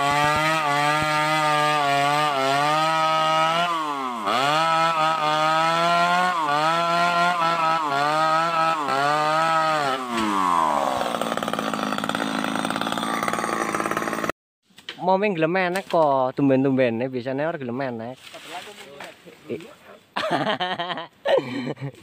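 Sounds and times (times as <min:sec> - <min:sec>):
chainsaw cutting wood: 0:00.0 - 0:14.4.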